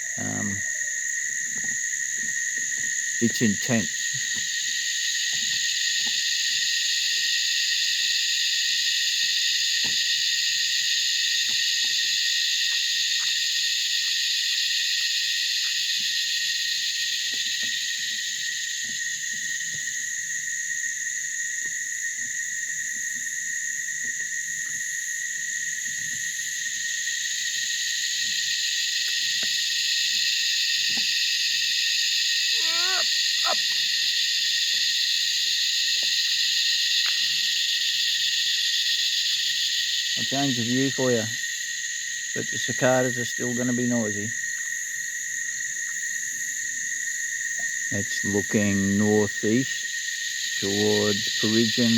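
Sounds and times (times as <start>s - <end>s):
cicadas droning: 0.0s - 51.9s
short wavering call: 32.5s - 33.8s.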